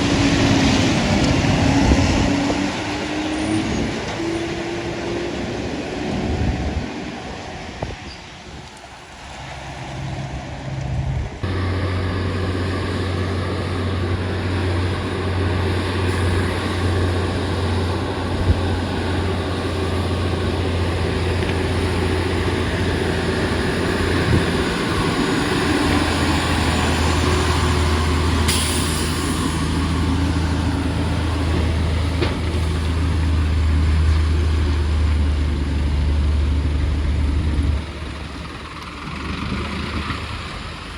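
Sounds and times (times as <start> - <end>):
truck diesel engine droning: 0.0 - 40.9
brief hiss: 28.5 - 30.0.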